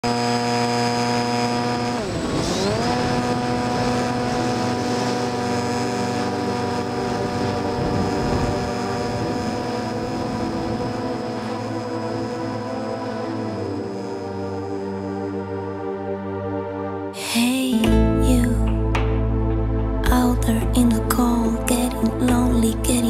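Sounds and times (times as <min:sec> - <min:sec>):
model plane motor whining: 0:00.0 - 0:15.9.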